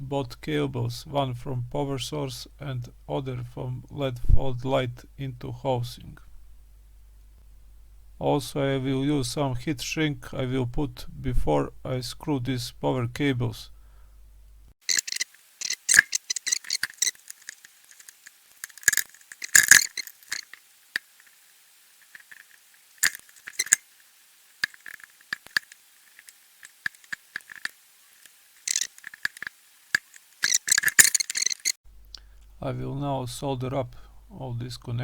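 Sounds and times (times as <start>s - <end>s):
hands handling cables clicking: 14.9s - 20.6s, 28.7s - 31.8s.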